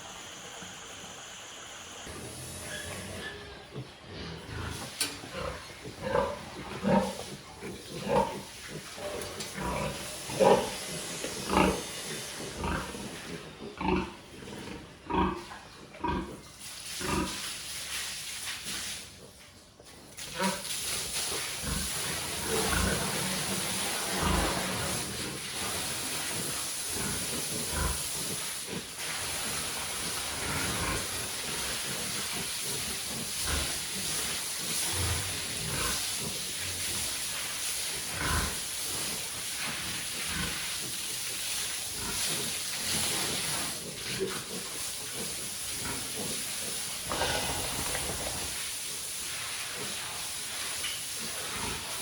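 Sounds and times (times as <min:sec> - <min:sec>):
steady hiss: 0:00.0 - 0:19.2, 0:20.2 - 0:52.0
pigs grunting and squealing: 0:02.1 - 0:16.4, 0:21.6 - 0:29.1, 0:30.0 - 0:36.9, 0:38.1 - 0:38.6, 0:41.9 - 0:48.7.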